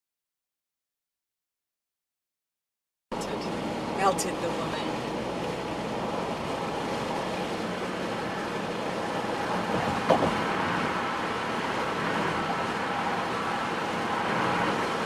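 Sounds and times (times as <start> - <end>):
vehicle road noise: 3.1 - 15.0.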